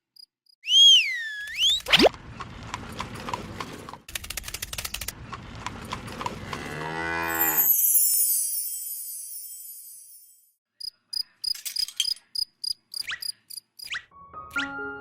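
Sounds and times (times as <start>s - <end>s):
whistle-like pitch glides: 0.6s - 2.1s
cow mooing: 6.4s - 7.5s
high chime-like sweep: 7.4s - 10.2s.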